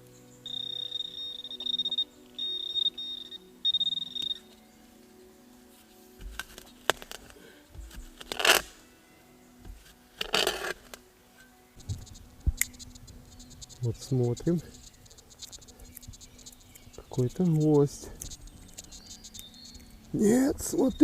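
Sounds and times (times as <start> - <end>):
metal detector beeping: 0.4 - 4.6, 11.8 - 21.0
digging in soil: 4.2 - 9.0, 9.6 - 21.0.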